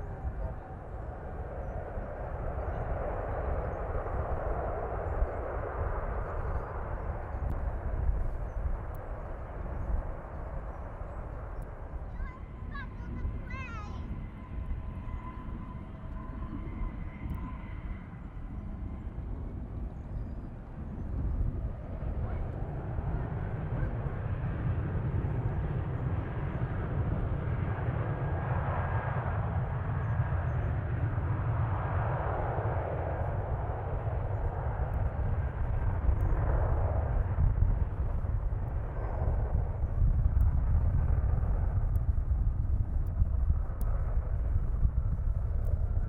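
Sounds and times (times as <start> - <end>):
jet engines rumbling: 0.0 - 46.0.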